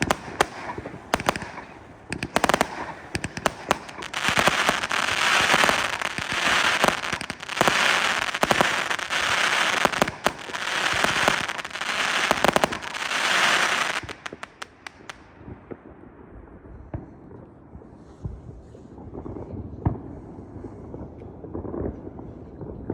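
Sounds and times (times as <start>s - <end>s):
fireworks crackling: 0.0s - 15.5s
fireworks bangs: 0.0s - 16.0s
low background noise: 0.0s - 22.9s.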